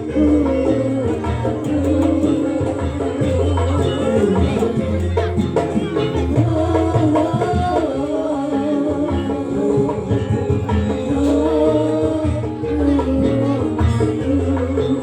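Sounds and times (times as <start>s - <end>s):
drumming: 0.0s - 8.2s
sliding melody line: 0.0s - 15.0s.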